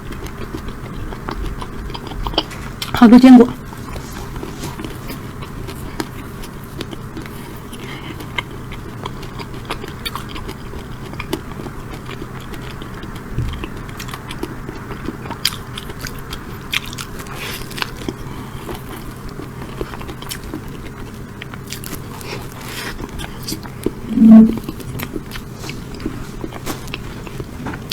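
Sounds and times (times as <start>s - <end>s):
chewing cake: 0.0s - 27.9s.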